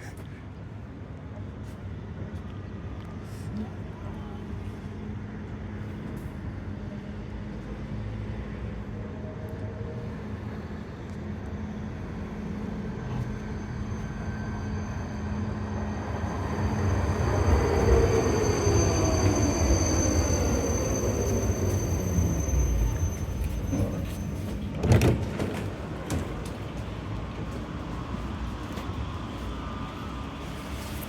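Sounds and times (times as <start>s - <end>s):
tram running on rails: 0.0s - 31.0s.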